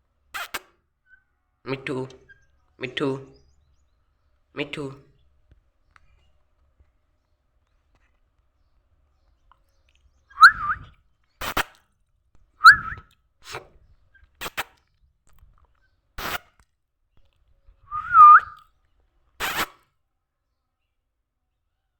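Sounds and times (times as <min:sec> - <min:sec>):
gliding whistles: 0:10.4 - 0:10.9, 0:12.6 - 0:13.0, 0:17.9 - 0:18.6.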